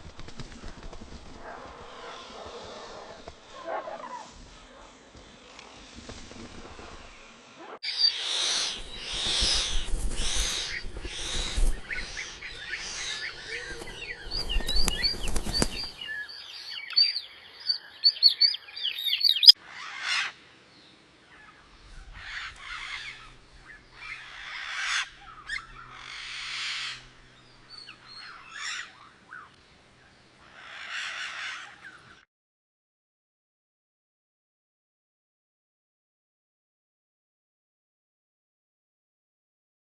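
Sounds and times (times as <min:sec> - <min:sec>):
quick high bird chirps: 0:07.9 - 0:19.6
harsh bird calls: 0:07.9 - 0:20.4.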